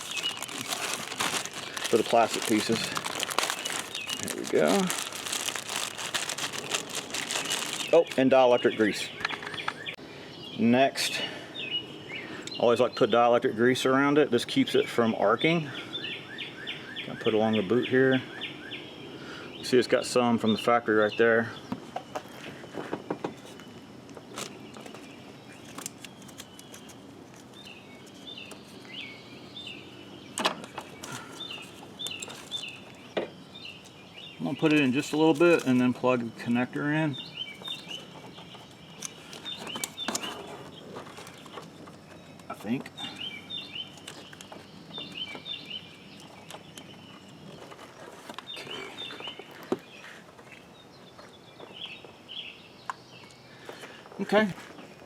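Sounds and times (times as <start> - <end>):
small bird chirping: 0.0 - 10.6, 23.3 - 47.8.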